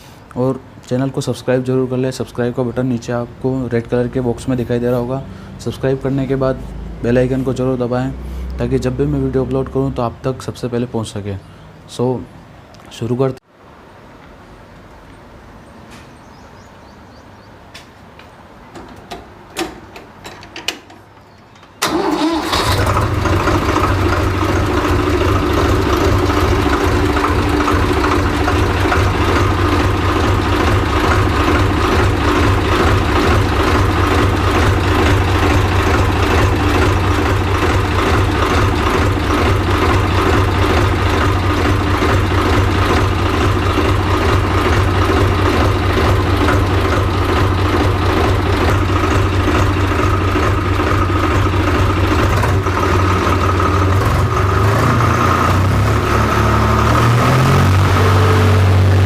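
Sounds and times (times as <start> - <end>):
tractor diesel engine idling: 21.8 - 59.0.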